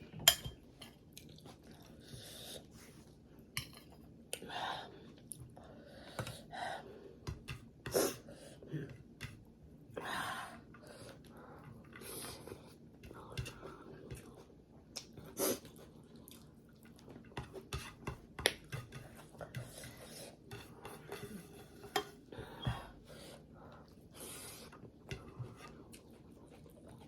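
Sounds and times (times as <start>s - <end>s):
cutlery clinking on a plate: 0.2s - 0.9s.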